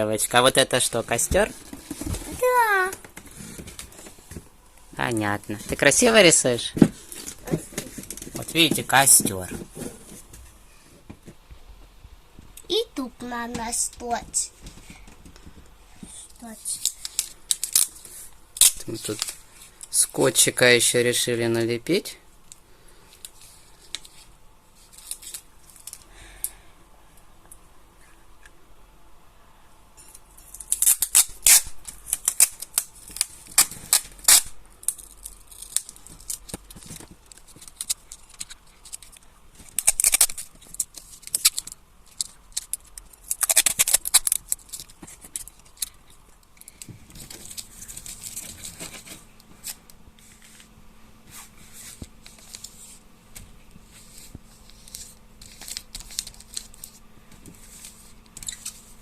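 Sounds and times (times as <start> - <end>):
sticky tape pulled and torn: 16.8 - 18.0, 18.6 - 19.4, 30.4 - 46.0, 54.0 - 57.0
paper rustling: 46.7 - 59.0.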